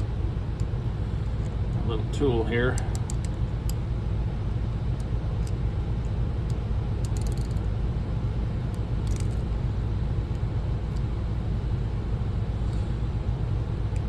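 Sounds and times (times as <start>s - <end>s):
small tool clicking on screw: 2.8s - 3.8s, 5.0s - 7.7s, 8.7s - 9.4s.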